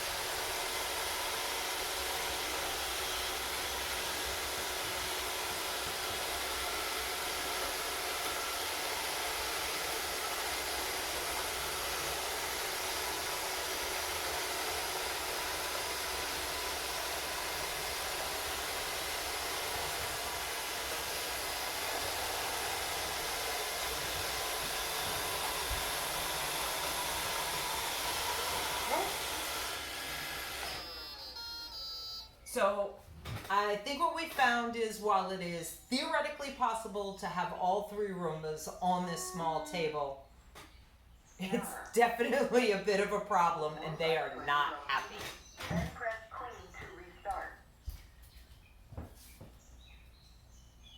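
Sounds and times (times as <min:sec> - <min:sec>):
robot vacuums whirring: 0:00.0 - 0:32.0.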